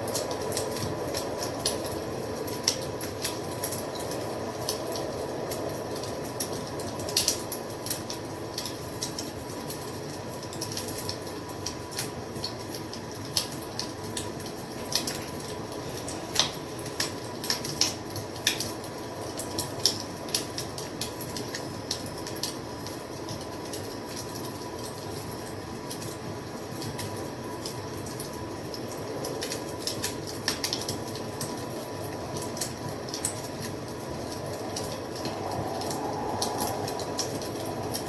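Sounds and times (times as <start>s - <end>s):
fire crackling: 0.0s - 9.6s, 25.8s - 38.0s.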